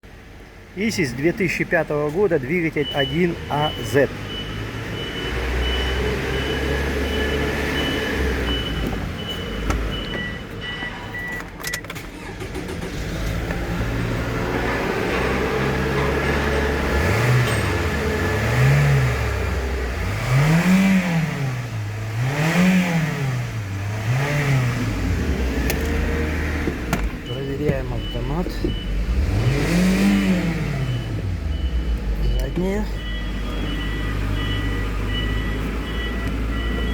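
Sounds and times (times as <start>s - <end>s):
car engine idling and revving: 0.0s - 36.9s
electronic beeping: 27.2s - 36.9s.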